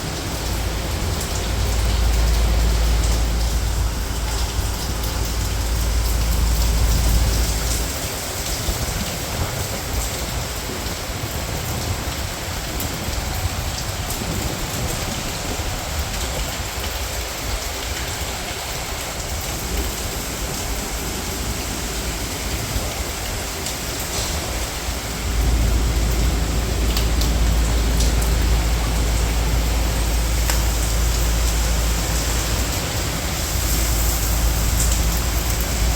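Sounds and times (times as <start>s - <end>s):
deep low rumble: 0.0s - 8.6s, 24.6s - 35.9s
rain falling: 0.0s - 35.9s.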